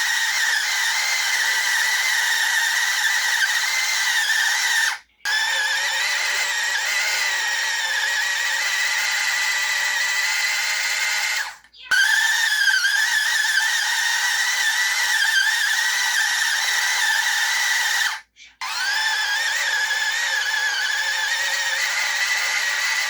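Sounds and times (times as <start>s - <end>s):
washing machine motor whining: 0.0s - 23.0s.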